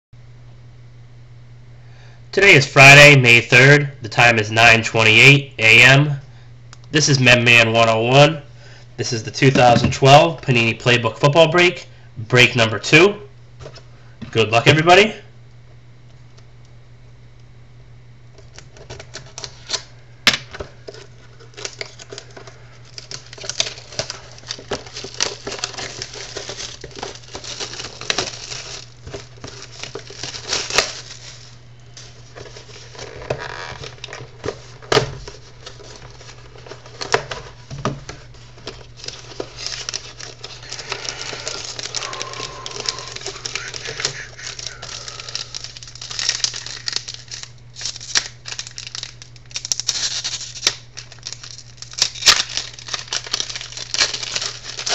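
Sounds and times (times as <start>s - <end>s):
foil packs crinkling: 18.4s - 54.9s
low hum: 39.9s - 47.7s.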